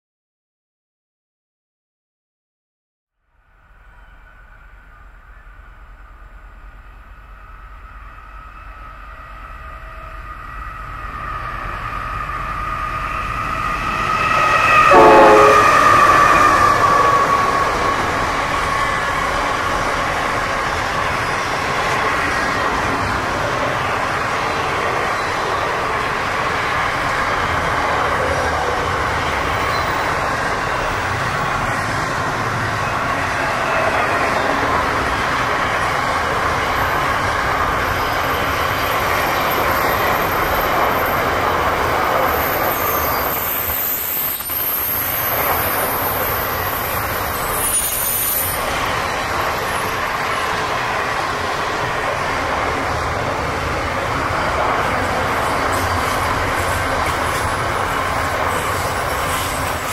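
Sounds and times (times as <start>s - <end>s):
freight train wheels rumbling: 3.5s - 59.9s
high-pitched wheel squeal: 8.0s - 19.1s, 42.1s - 50.2s.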